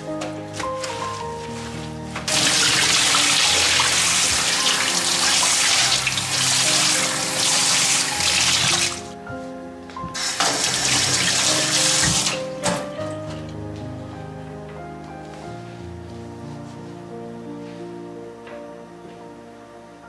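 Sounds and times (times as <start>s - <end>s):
soft background music: 0.0s - 20.0s
tap water running into sink: 2.3s - 9.1s, 10.2s - 12.5s.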